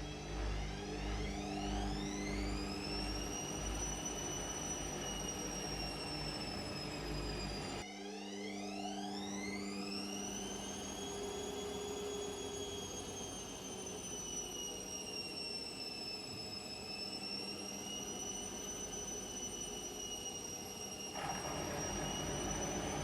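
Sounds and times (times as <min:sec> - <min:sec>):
washing machine motor whining: 0:00.0 - 0:23.0.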